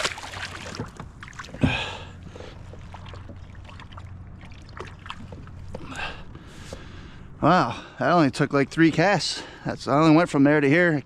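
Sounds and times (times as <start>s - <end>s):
fish splashing into water: 0.0s - 2.0s
faint water trickling: 0.0s - 11.0s.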